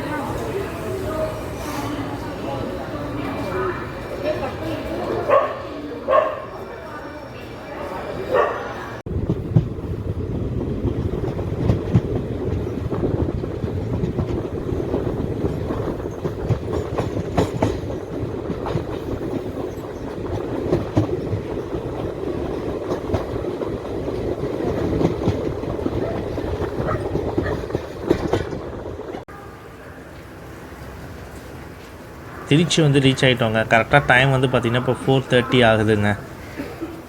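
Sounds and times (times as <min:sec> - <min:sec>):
train coach rumble: 0:00.0 - 0:37.0
wheels clacking over rail joints: 0:09.1 - 0:29.3.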